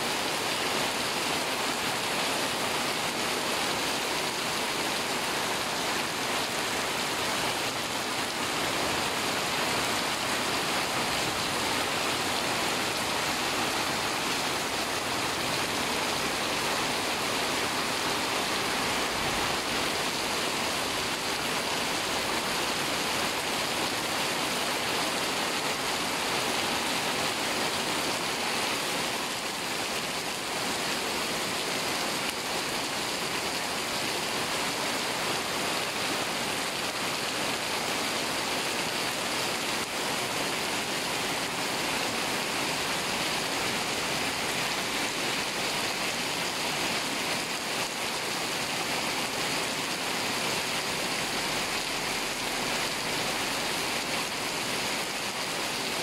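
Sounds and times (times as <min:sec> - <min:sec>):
heavy rain on pavement: 0:00.0 - 0:56.0.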